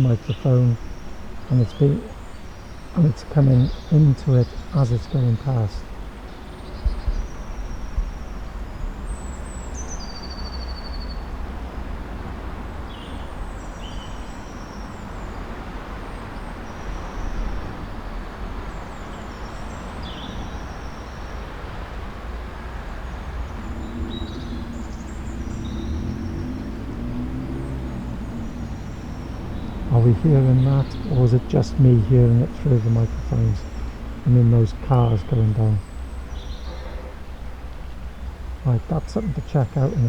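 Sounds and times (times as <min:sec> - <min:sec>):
small birds chirping: 0:00.0 - 0:11.4, 0:12.8 - 0:40.0
distant road traffic rumble: 0:00.0 - 0:40.0
passing cars engine drone: 0:11.3 - 0:40.0.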